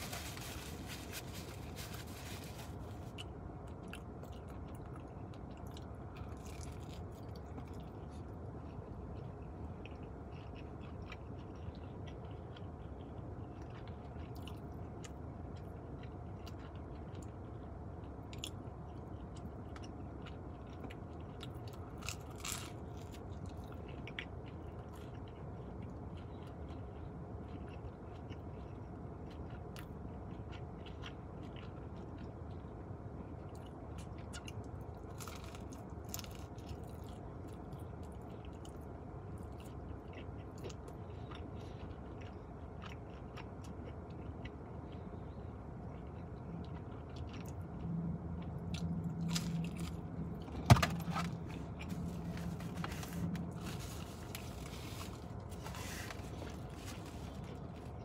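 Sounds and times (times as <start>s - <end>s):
chewing and biting pizza: 0.0s - 58.0s
low background rumble: 0.0s - 58.0s
crunchy bites: 21.4s - 24.2s.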